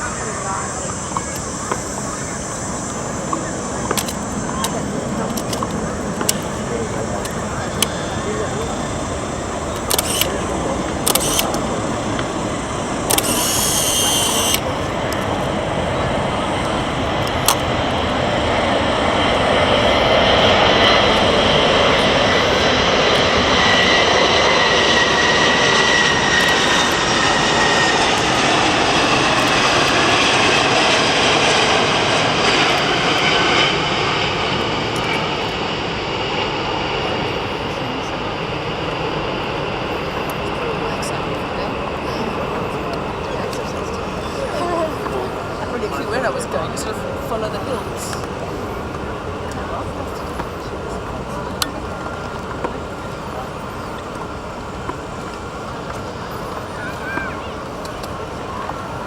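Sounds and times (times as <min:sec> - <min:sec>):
jet engines with fan whine: 0:00.0 - 0:59.0
sharp clicks: 0:03.3 - 0:06.6, 0:09.7 - 0:15.3.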